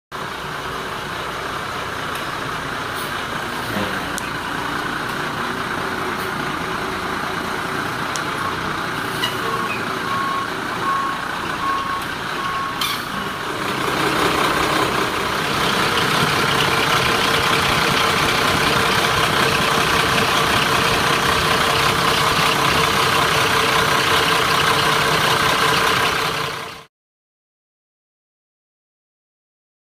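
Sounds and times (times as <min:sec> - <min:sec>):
diesel truck engine running: 0:00.1 - 0:26.9
back-up alarm beeps: 0:09.2 - 0:13.4.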